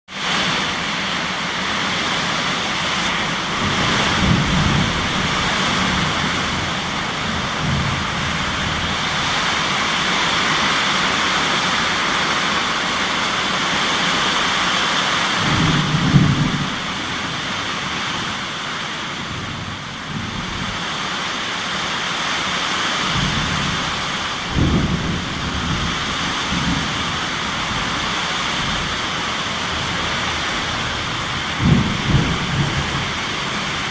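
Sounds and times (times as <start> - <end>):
heavy rain: 0.1 - 33.9
low rolls of thunder: 2.9 - 12.0, 15.3 - 20.9, 23.1 - 33.9.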